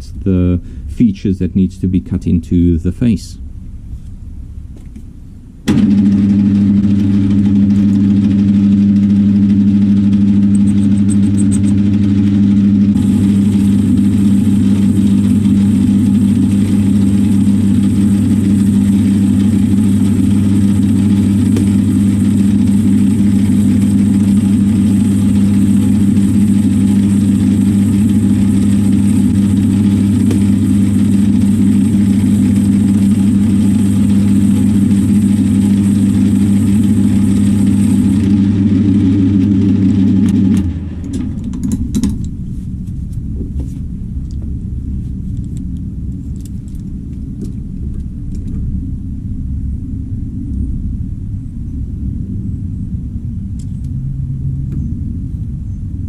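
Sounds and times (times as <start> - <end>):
thin high whine: 0.0 - 48.1
metal lathe motor hum: 5.7 - 42.5.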